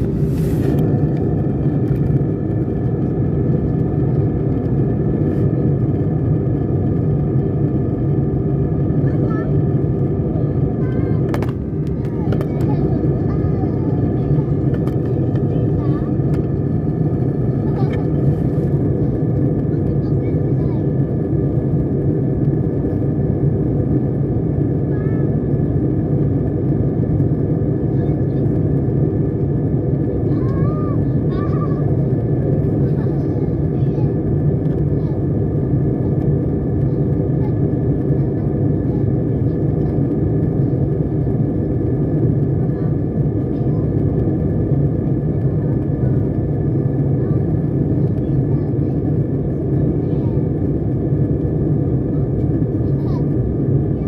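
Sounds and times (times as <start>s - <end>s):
airliner cabin drone: 0.0s - 54.0s.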